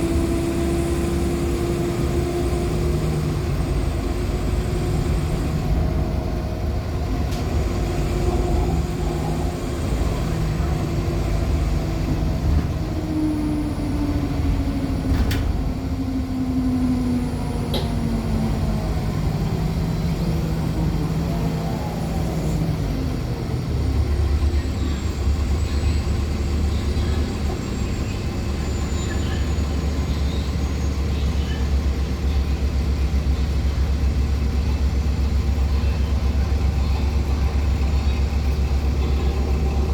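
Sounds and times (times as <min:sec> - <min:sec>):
bus drivetrain hum: 0:00.0 - 0:39.9
low engine rumble: 0:00.0 - 0:39.9.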